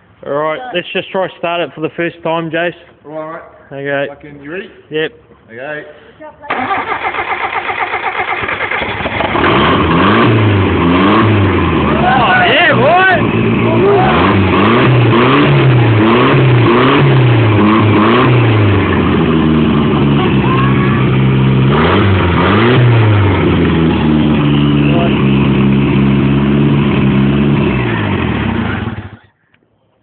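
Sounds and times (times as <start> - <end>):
car engine revving and idling: 7.4 - 29.3.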